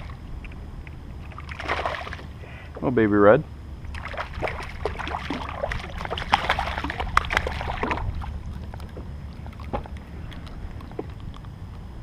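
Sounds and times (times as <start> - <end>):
low wind rumble: 0.0 - 12.0
fish splashing in water: 1.2 - 2.4, 3.8 - 10.6.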